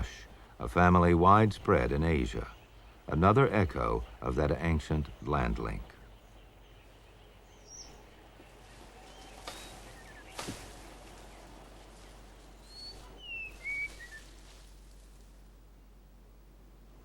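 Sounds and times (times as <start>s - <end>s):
bird whistling song: 6.1s - 8.1s, 9.0s - 10.5s, 12.6s - 14.3s.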